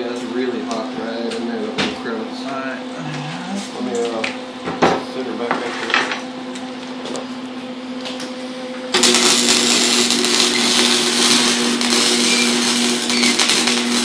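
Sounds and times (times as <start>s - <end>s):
steady hum: 0.4s - 5.5s
welding arc crackling hiss: 8.9s - 14.0s.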